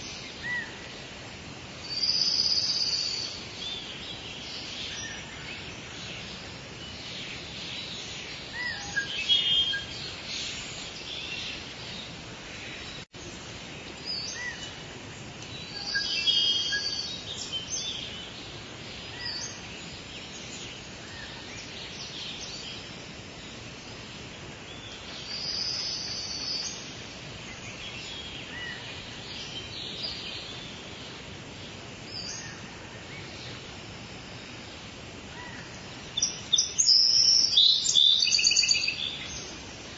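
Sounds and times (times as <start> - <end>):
soft rain: 0.0 - 39.9
birds chirping and calling: 35.3 - 39.9.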